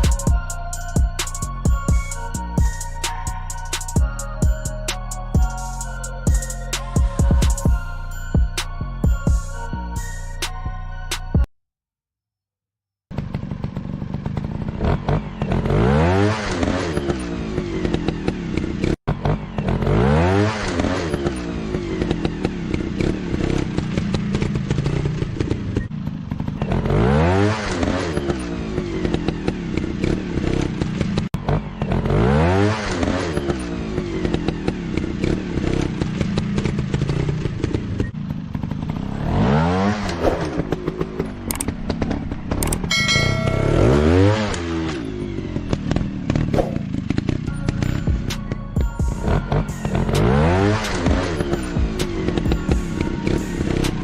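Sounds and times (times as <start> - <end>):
motorcycle engine revving: 13.1 - 54.0.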